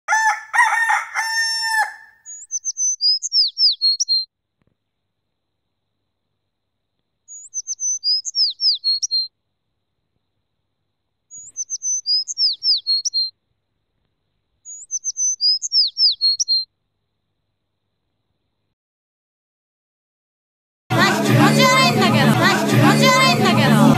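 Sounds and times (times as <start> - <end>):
songbird singing falling notes: 2.3 - 4.3, 7.3 - 9.3, 11.3 - 13.3, 14.6 - 16.7.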